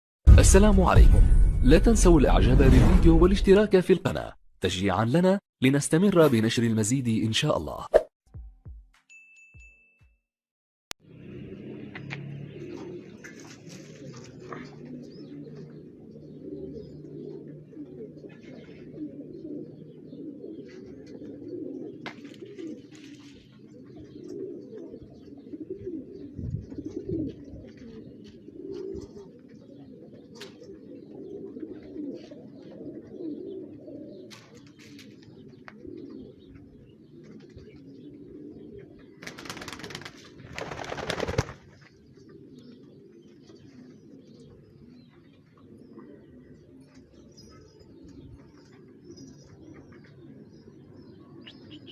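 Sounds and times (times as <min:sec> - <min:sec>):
pigeons cooing: 0:11.4 - 0:51.9.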